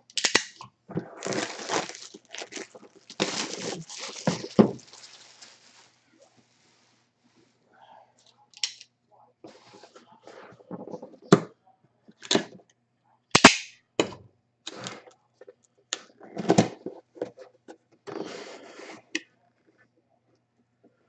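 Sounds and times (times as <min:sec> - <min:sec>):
packaging seals snapping: 0:00.1 - 0:05.6
packaging rustling: 0:01.0 - 0:06.0.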